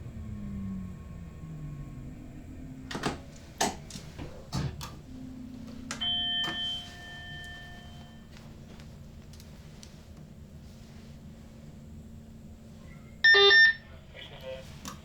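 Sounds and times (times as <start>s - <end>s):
cab control clicks and knocks: 2.9s - 5.0s
electronic warning tone: 5.1s - 8.3s, 13.2s - 13.9s.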